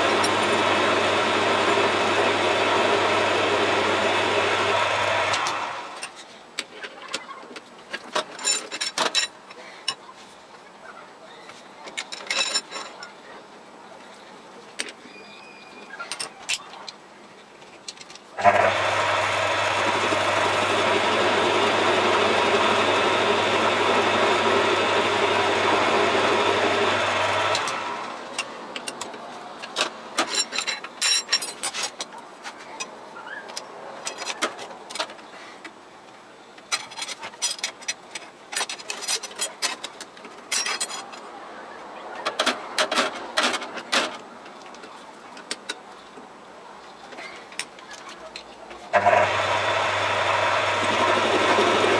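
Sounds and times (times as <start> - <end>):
metal lathe whining: 0.0 - 6.1, 18.4 - 28.2, 49.0 - 51.9
metal parts and tools clicking: 7.9 - 10.0, 11.9 - 13.0, 28.3 - 32.2, 36.6 - 41.3.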